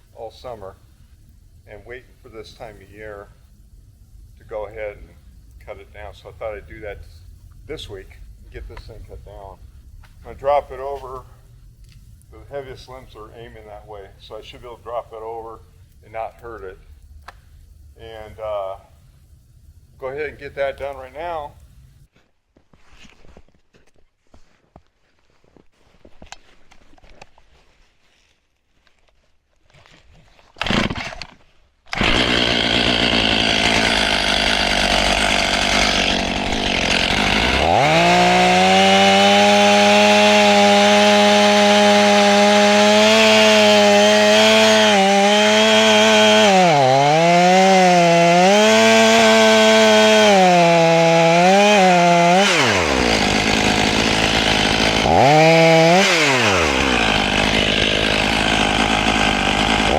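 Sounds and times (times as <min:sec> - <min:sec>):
chainsaw cutting wood: 0:30.5 - 0:59.9.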